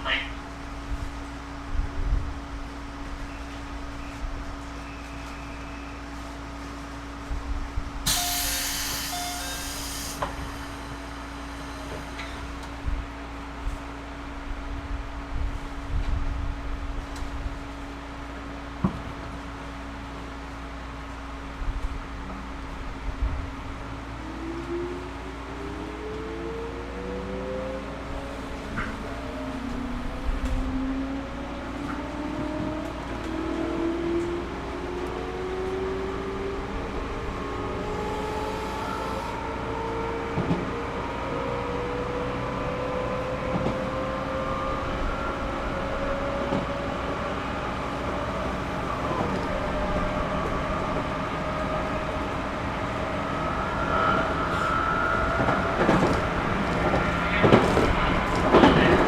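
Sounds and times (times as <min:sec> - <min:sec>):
train running rumble: 0:00.0 - 0:59.0
train motor whine: 0:07.9 - 0:13.8, 0:35.0 - 0:40.7, 0:41.4 - 0:59.0.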